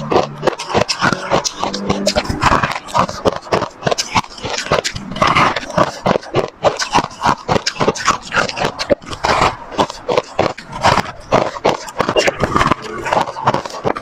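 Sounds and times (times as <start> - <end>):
ice being crunched and chewed: 0.0 - 14.0.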